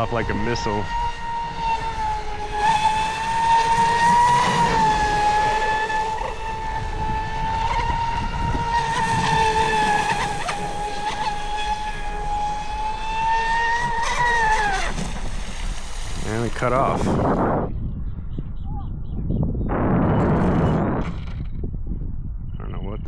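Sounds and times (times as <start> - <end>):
electric motor whine: 0.0 - 17.6.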